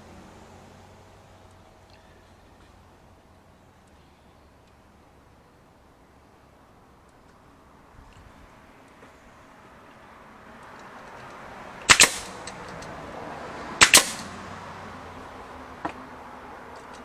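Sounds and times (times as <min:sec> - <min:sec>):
nails driven into wood: 0:11.9 - 0:12.9, 0:13.8 - 0:14.4.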